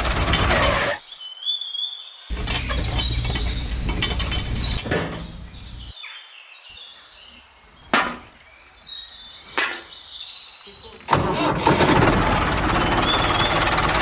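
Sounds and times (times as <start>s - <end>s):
rapid mechanical clicking: 0.0s - 0.8s
low hum: 2.3s - 5.9s
single sharp click: 9.5s - 9.8s.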